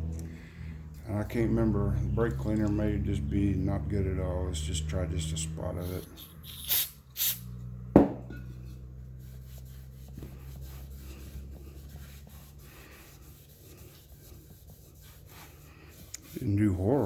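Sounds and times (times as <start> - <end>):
low hum: 0.0 - 6.4
sharp knock: 8.0 - 8.3
rag rubbing on metal tank: 8.6 - 17.0.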